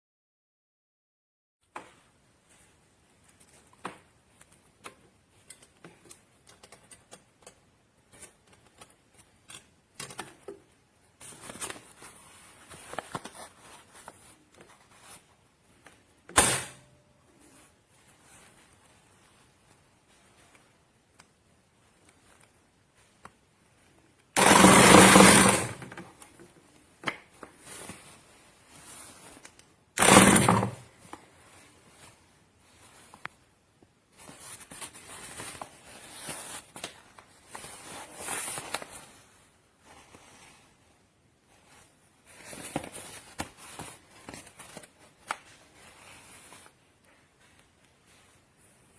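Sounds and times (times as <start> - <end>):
electric sewing machine running: 24.4 - 25.8, 30.0 - 30.8.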